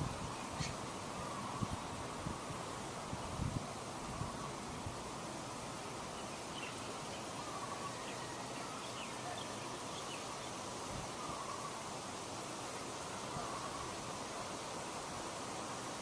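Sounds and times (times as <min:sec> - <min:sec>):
faint high bird chirps: 0:00.4 - 0:01.8, 0:06.1 - 0:11.8.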